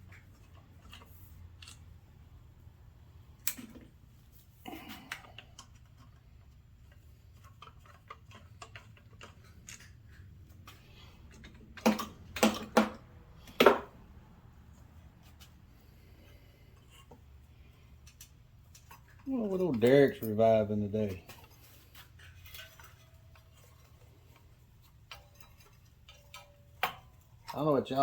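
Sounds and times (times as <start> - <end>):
metal parts clicking: 0.1 - 1.9, 4.8 - 13.7, 17.9 - 28.0.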